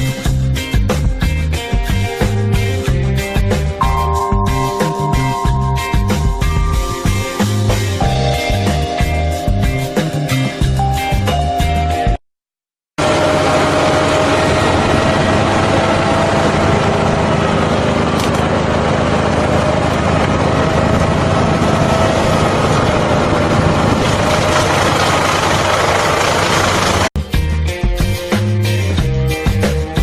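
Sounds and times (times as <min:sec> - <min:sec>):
heavy machine engine running: 0:13.0 - 0:27.1.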